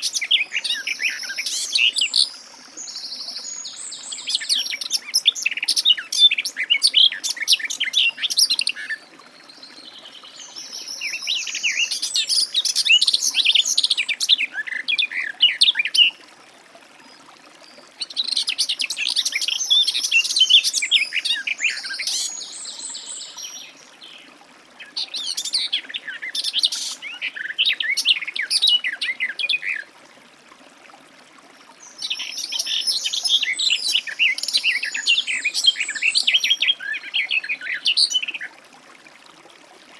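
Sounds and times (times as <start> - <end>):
warbler singing: 0.0 - 9.0, 18.2 - 29.8, 31.8 - 38.4.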